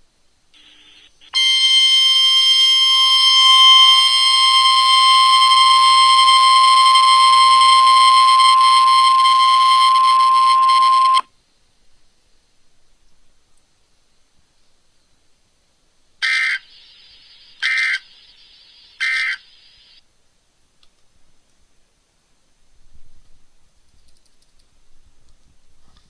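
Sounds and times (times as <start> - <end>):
high-pitched alarm tone: 1.3 - 11.3.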